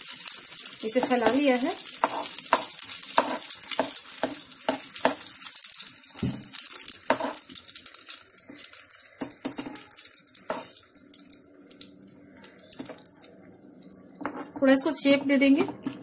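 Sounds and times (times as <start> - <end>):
oil sizzling in a frying pan: 0.0 - 16.0
steel spoon scraping a pan: 0.8 - 4.0, 7.1 - 7.5, 9.6 - 10.9, 14.2 - 14.6.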